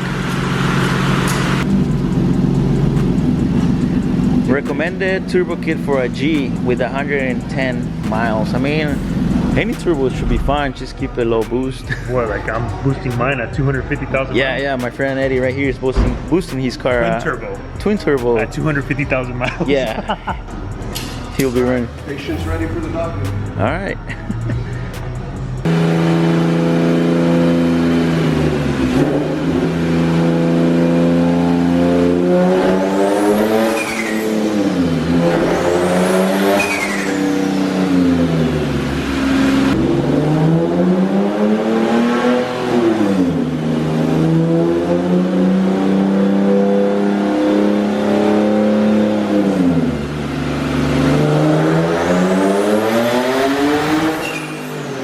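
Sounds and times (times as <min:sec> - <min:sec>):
car engine revving hard: 0:25.0 - 0:55.0
high turbo whistle: 0:33.3 - 0:38.0.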